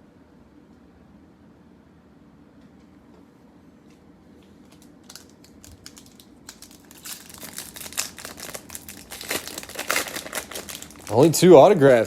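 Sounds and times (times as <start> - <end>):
foil wrapper crinkling: 4.6 - 12.0.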